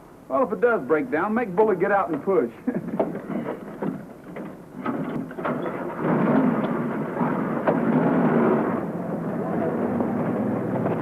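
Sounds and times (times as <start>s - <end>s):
car engine starting and running: 3.7s - 11.0s.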